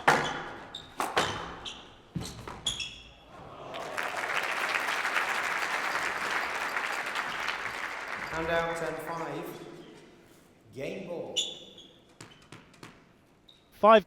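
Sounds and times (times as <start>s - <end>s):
audience applause: 3.3s - 9.1s.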